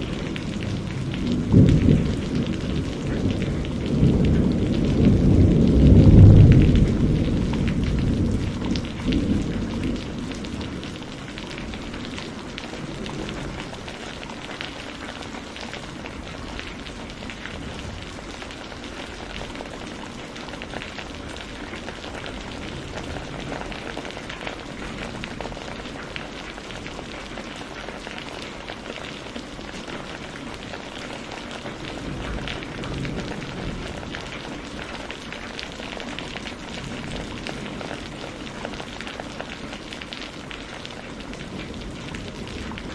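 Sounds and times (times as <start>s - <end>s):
thunder rumble: 0.0s - 27.1s, 31.7s - 35.5s
heavy rain falling: 0.0s - 42.9s.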